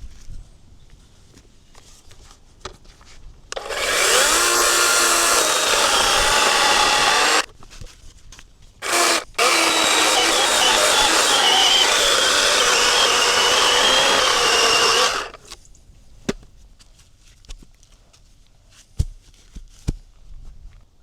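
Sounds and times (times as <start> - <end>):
electric chainsaw cutting logs: 3.5 - 7.5, 8.8 - 15.6.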